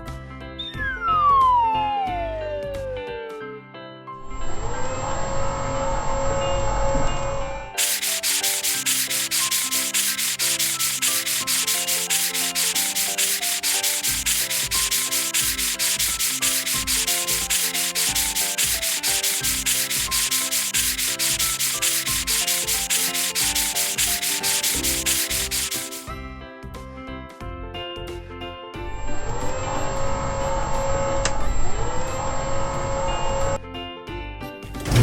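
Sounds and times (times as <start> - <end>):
fast rubbing strokes: 7.8 - 26.1.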